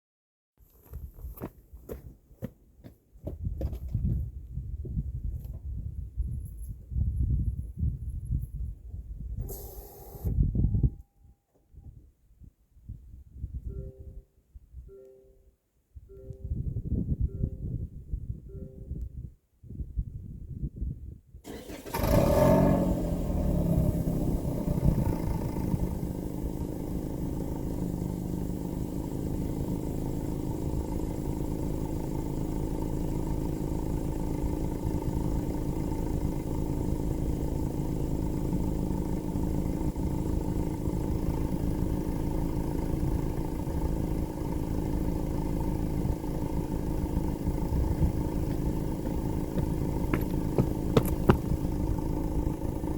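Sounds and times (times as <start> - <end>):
car engine starting and idling: 9.4 - 10.4, 21.4 - 52.9.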